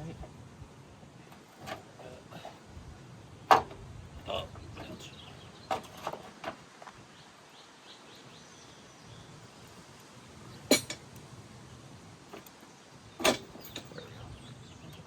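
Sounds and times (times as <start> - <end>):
metal parts clinking: 10.7 - 11.0, 13.2 - 14.1.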